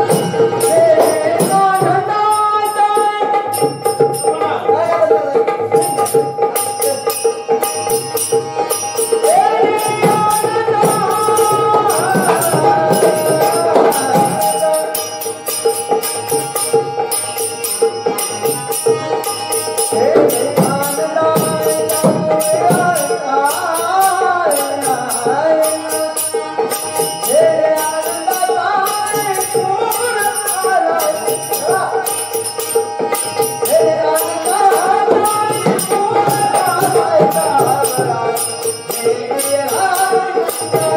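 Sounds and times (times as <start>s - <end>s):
person singing folk song: 0.0s - 3.6s, 9.2s - 15.0s, 33.6s - 40.9s
fast percussion strikes: 0.0s - 40.9s.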